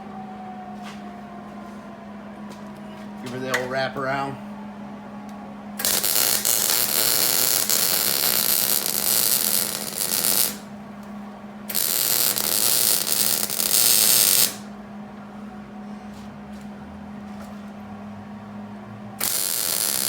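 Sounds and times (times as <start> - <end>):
steady low hum: 0.0 - 20.0
welder arc crackling: 5.8 - 10.7, 11.7 - 14.7, 19.2 - 20.0.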